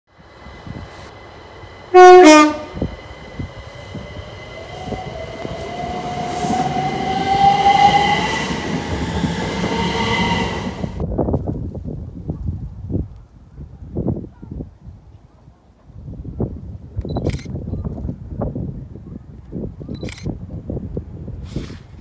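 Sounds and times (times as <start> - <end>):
train whine rising: 0.1 - 11.0
wheels on rails: 0.2 - 11.0
two-note train horn: 1.9 - 2.9.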